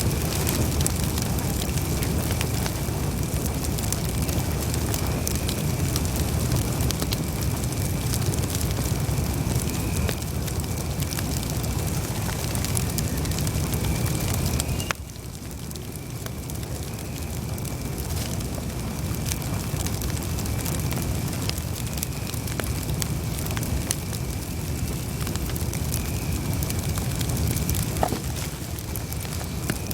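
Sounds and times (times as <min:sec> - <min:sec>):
campfire crackling and popping: 0:00.0 - 0:29.9
faint high whistle: 0:12.8 - 0:15.0.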